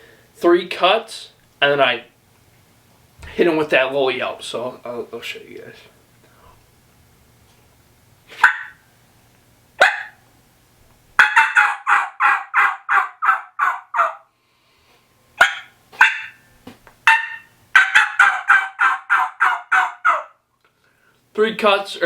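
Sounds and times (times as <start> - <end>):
turkey call yelps: 8.3 - 8.8, 9.8 - 10.2, 11.2 - 14.3, 15.4 - 20.4.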